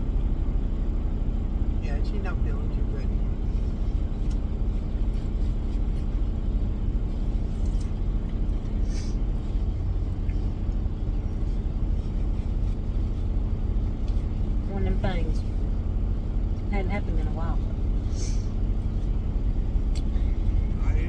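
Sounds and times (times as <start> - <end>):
diesel truck engine rumbling: 0.0 - 21.0
short air hiss: 8.8 - 9.2, 18.1 - 18.6.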